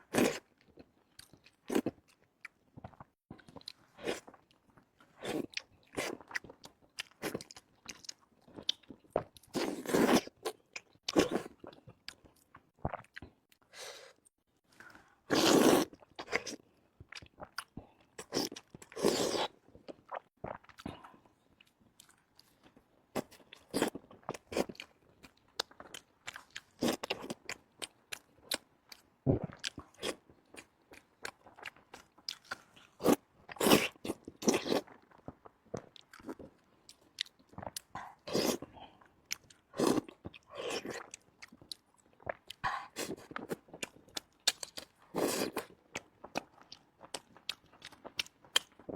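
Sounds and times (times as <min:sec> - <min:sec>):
crunchy bites and chewing: 0:29.5 - 0:48.9.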